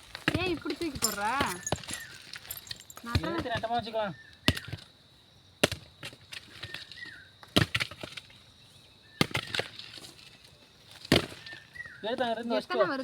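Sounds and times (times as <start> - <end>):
hand tool striking ground: 0.0 - 3.8, 5.6 - 8.4, 9.2 - 12.2.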